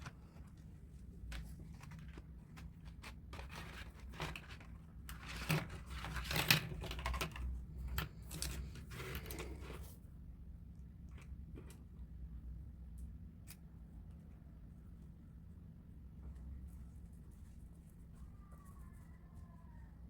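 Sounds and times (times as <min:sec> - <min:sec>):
paper rustling and crinkling: 0:00.0 - 0:07.4.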